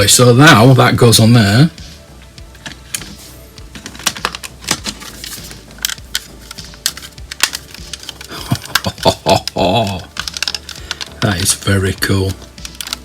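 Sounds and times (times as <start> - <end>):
plastic parts clicking: 3.8 - 11.5, 12.3 - 13.0.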